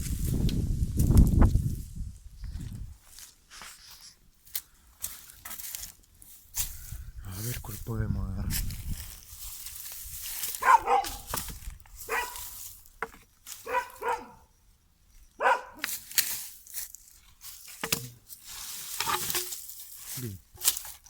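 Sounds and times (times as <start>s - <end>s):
dog barking: 10.6s - 11.4s, 12.1s - 12.4s, 13.6s - 14.5s, 15.4s - 15.8s.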